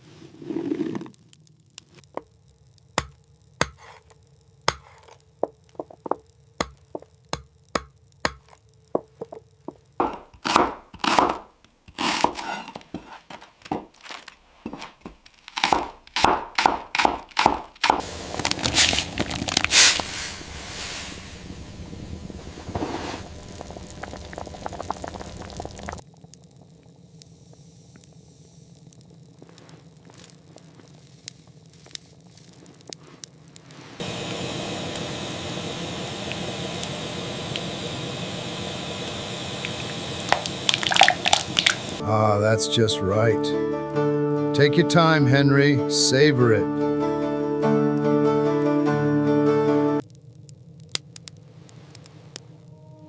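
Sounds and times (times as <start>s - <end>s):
knife chopping on a board: 3.0s - 4.0s, 4.7s - 5.0s, 10.0s - 11.4s, 15.6s - 18.0s
knife scraping a board: 3.6s - 4.1s, 4.7s - 5.2s, 12.0s - 13.5s
steady hiss: 17.8s - 43.2s, 50.0s - 53.0s.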